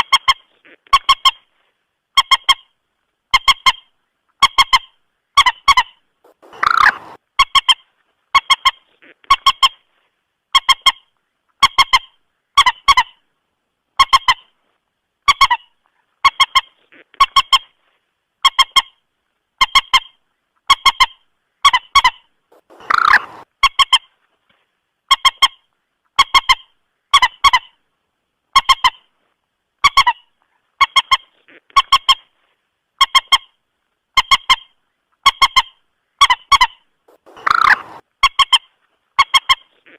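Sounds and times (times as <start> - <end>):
moorhen calls: 4.4 - 7.7, 21.0 - 23.5, 35.5 - 38.0.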